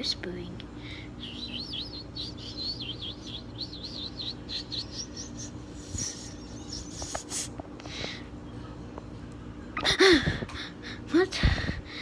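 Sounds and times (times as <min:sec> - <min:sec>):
steady low hum: 0:00.0 - 0:12.0
small bird warbling chirps: 0:01.2 - 0:07.4.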